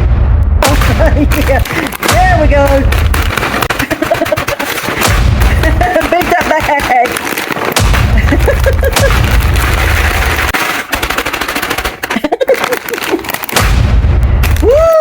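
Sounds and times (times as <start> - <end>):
frozen vegetable bag thumping: 0.6 - 15.0.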